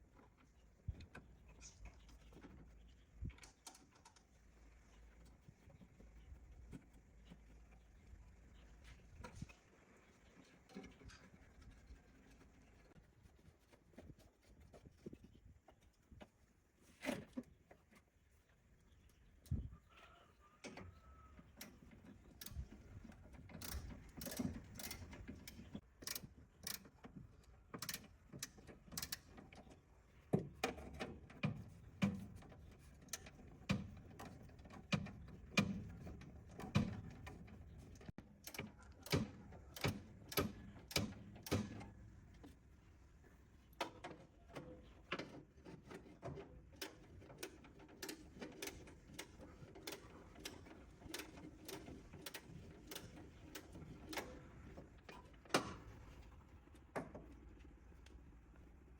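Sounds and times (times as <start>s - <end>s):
hand tools clicking on metal: 23.6s - 26.8s.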